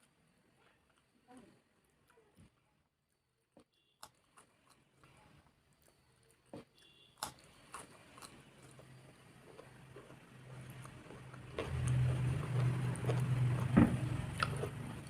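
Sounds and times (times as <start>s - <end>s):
chewing clicks and smacks: 3.7s - 15.0s.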